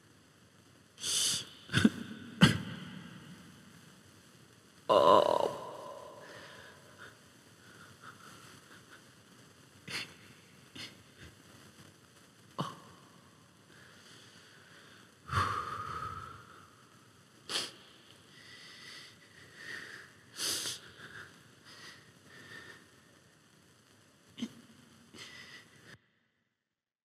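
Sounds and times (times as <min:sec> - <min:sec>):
person sniffing and breathing: 0:01.0 - 0:02.0, 0:13.7 - 0:16.6, 0:17.5 - 0:22.9, 0:25.2 - 0:26.0.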